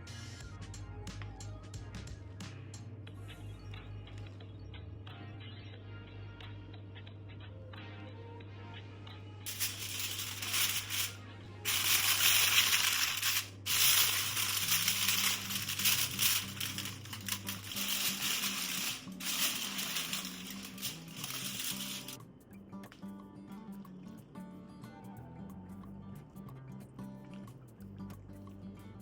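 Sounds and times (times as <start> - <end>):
background music: 0.0 - 29.0
rustling and scraping food preparation: 9.5 - 22.2.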